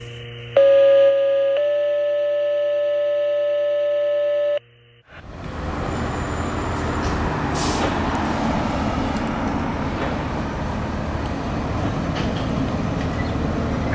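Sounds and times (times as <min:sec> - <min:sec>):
street noise: 0:05.0 - 0:13.9
vehicle engine rumble: 0:05.1 - 0:13.9.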